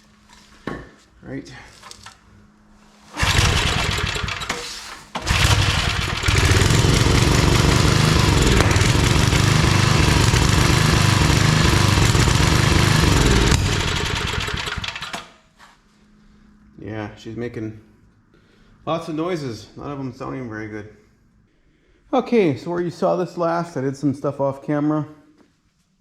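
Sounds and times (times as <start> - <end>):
small engine running poorly: 3.1 - 15.2.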